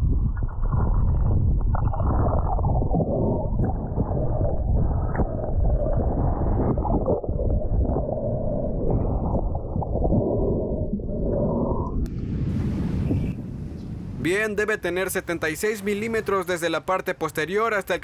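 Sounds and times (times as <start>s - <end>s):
muffled underwater churning: 0.0s - 13.2s.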